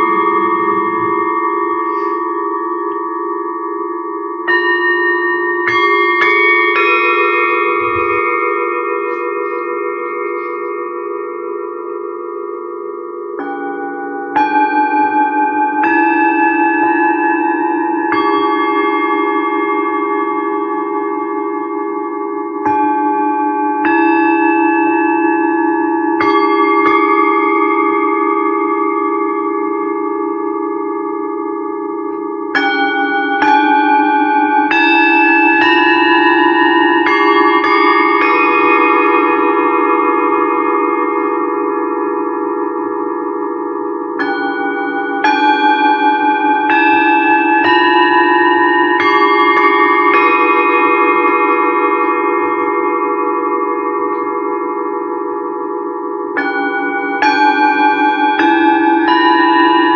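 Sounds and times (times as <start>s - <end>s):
low beating hum: 0.0s - 3.4s, 7.3s - 12.0s
low hum of singing bowls: 0.0s - 59.9s
singing bowls struck and ringing: 0.0s - 59.9s.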